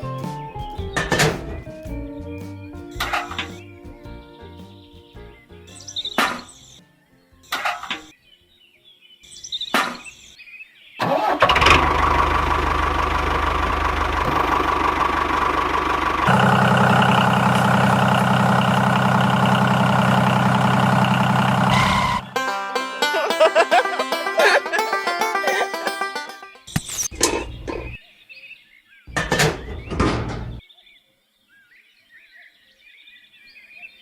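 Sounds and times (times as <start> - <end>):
small engine running: 11.4 - 21.8.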